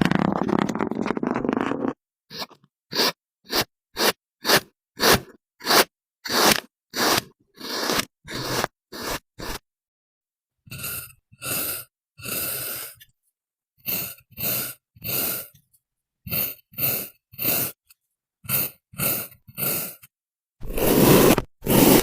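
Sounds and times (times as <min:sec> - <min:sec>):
sand scraping: 0:20.6 - 0:22.0.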